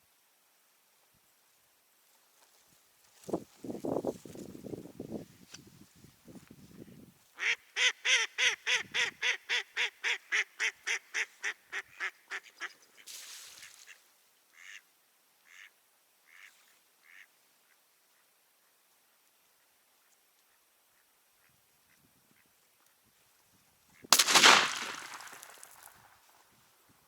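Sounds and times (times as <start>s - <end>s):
duck quacking: 7.4s - 12.8s, 14.6s - 14.8s.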